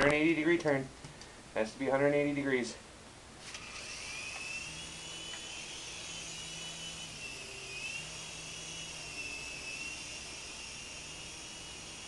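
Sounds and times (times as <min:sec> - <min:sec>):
rc helicopter rotor whine: 0:03.4 - 0:12.0.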